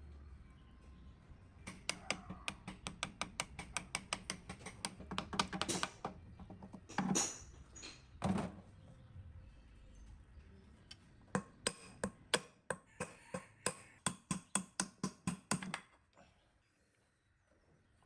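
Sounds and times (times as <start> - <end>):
hand tools clicking on metal: 1.7 - 6.2.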